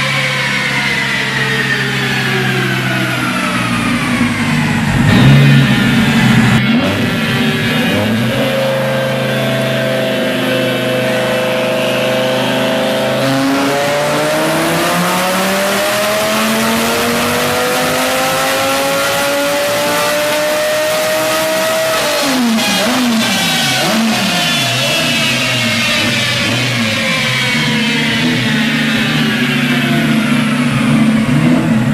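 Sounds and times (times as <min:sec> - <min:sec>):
sports car engine revving: 0:00.0 - 0:31.9.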